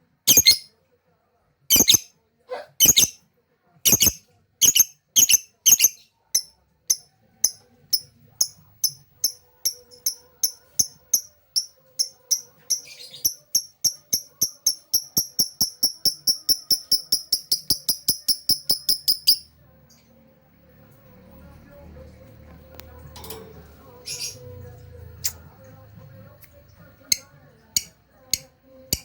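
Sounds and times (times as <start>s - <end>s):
lovebird chirping: 0.3s - 0.7s, 1.7s - 2.1s, 2.8s - 3.2s, 3.9s - 6.5s, 7.4s - 14.1s, 14.8s - 19.5s.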